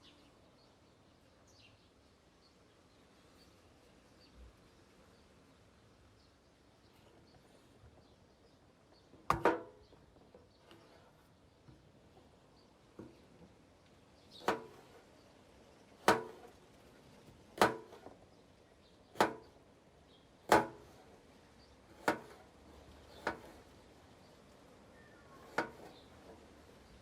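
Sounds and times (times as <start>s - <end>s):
cleaver chopping: 16.1s - 16.5s, 17.6s - 18.0s.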